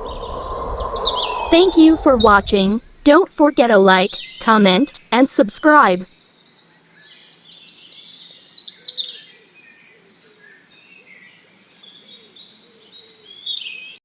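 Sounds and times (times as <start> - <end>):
birds chirping: 0.0 - 6.1.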